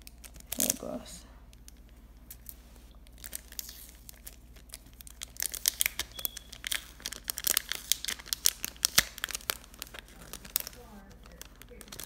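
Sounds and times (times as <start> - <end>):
plastic packaging rustling and crackling: 0.0 - 12.0.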